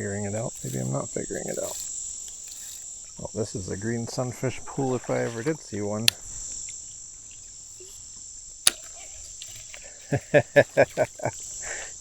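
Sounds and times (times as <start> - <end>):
insects shrilling: 0.0 - 12.0
sharp click: 8.6 - 9.9
person laughing: 9.9 - 11.9.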